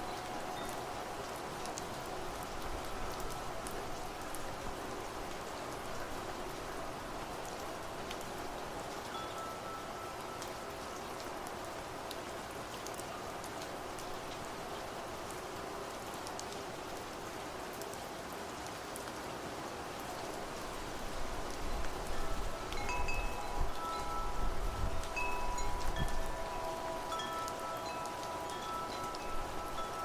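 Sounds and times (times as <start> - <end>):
wind chimes ringing: 0.0 - 2.2, 9.1 - 10.9, 22.0 - 30.0
rain falling: 0.0 - 30.0.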